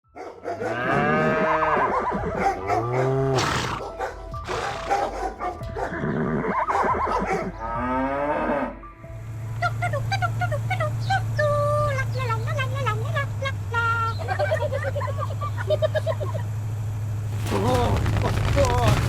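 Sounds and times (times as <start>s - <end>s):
music: 0.1s - 14.3s.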